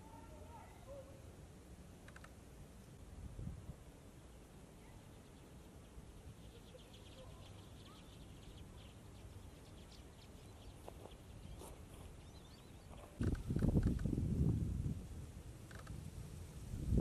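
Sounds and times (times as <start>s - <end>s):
small birds ticking: 2.0s - 2.5s, 4.2s - 14.2s, 15.5s - 16.1s.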